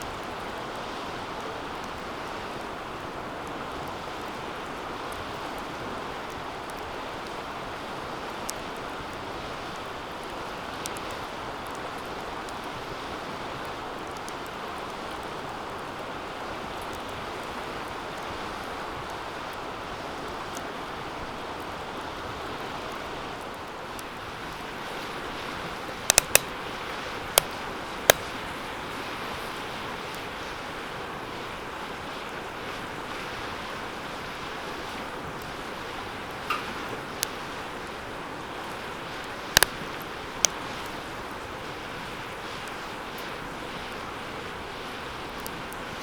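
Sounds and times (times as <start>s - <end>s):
fire crackling: 0.0s - 46.0s
wood snapping in fire: 23.4s - 28.8s, 35.3s - 41.3s
flames rushing: 23.5s - 30.9s.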